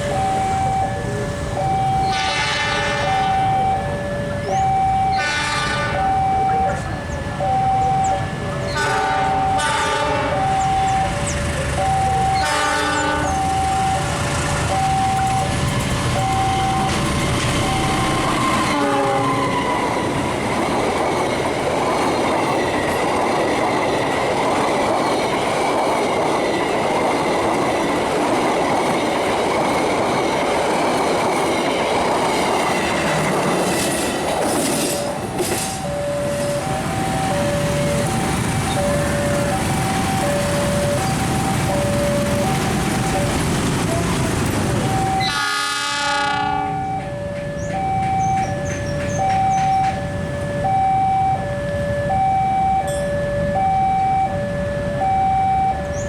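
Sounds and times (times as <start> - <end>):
two-tone crossing signal chiming: 0.0 - 21.2, 31.2 - 56.0
train wheels rushing on rails: 0.0 - 51.5
train horn: 1.9 - 3.6, 5.1 - 6.9, 8.6 - 10.6, 12.4 - 13.5, 18.0 - 20.0, 45.0 - 47.1.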